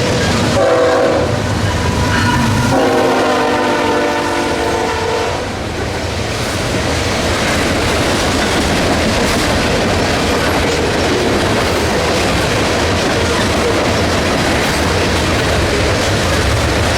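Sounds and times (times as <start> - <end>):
train rumbling past on rails: 0.0 - 16.9
train horn blowing: 0.6 - 5.6.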